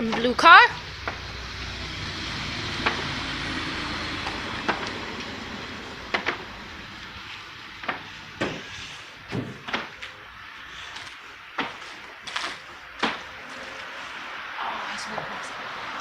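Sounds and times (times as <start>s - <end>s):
car wash spray and brushes: 0.0s - 9.3s.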